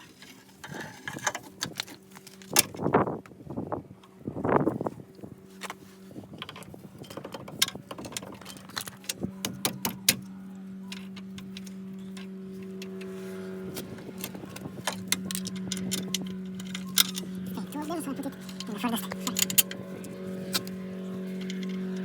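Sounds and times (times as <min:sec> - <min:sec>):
low mechanical hum: 0:00.0 - 0:22.0
metal tools clinking and tapping: 0:10.9 - 0:22.0.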